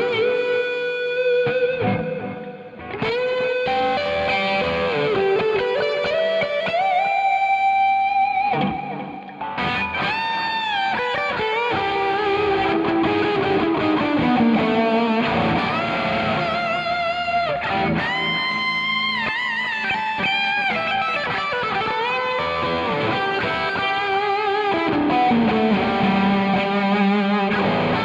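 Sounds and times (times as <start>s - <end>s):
electric guitar lead with bends: 0.0s - 28.0s.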